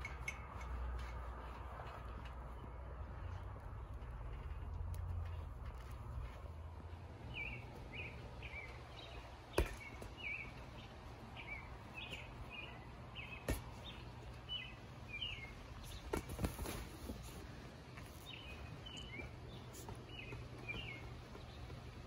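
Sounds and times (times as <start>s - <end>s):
bird chirping: 7.2s - 17.2s, 18.0s - 22.0s
sharp thumps: 9.5s - 10.4s.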